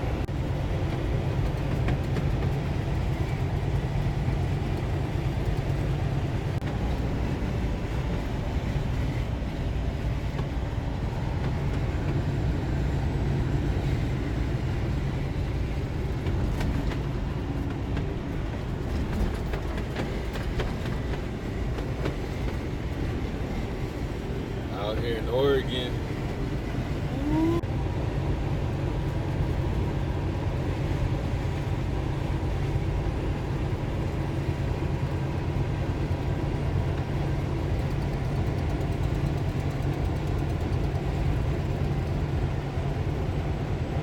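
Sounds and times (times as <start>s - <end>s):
road noise inside a cab: 0.0s - 44.0s
truck engine hum: 0.0s - 44.0s.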